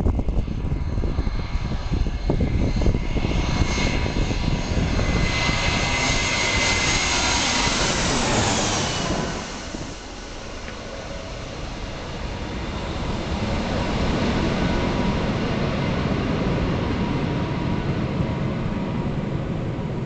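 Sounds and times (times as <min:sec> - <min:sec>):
jet engines roaring: 0:00.0 - 0:20.0
wind buffeting microphone: 0:00.0 - 0:20.0.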